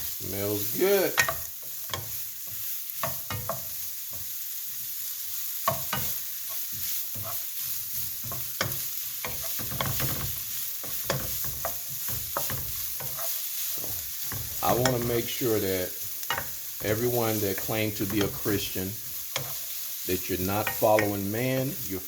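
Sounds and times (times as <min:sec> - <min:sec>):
vegetables sizzling in a skillet: 0:00.0 - 0:22.0
utensil scraping a pan: 0:05.8 - 0:15.6.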